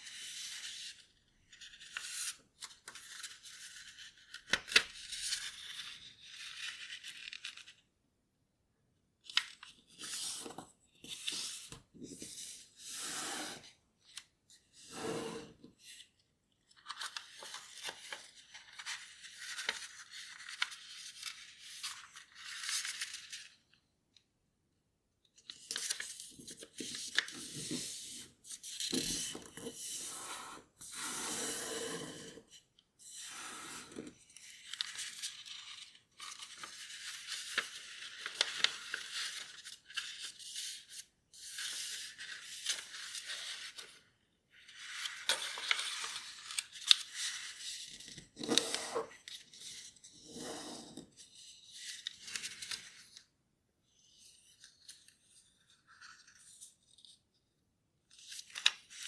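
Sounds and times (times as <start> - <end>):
paper rustling as folded: 15.9 - 23.7, 33.9 - 44.0, 44.7 - 49.9, 51.2 - 53.2.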